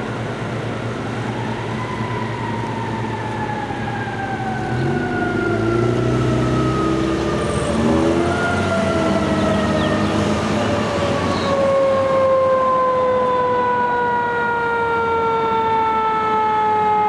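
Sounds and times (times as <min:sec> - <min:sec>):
deep loud truck sound: 0:00.0 - 0:13.2
mechanical siren wailing: 0:00.1 - 0:17.0.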